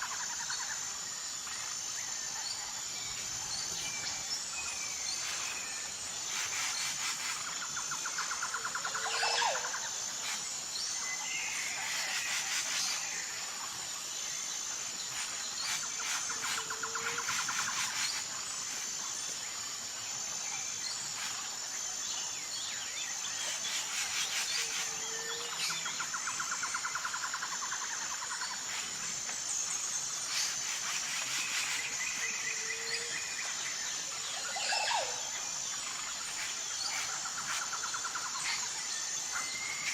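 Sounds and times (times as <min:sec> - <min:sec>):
high-pitched insect drone: 0:00.0 - 0:39.9.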